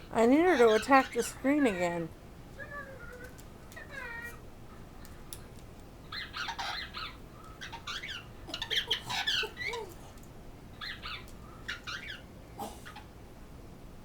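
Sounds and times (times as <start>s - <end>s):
parrot squawking: 6.1s - 10.0s, 10.8s - 13.1s.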